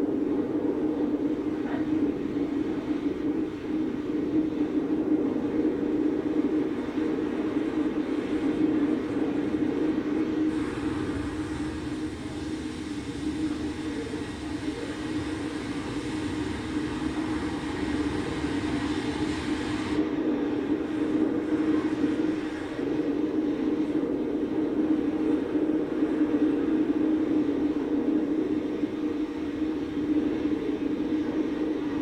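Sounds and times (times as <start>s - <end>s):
engine drone: 9.0s - 23.1s
rushing hiss: 10.4s - 20.1s.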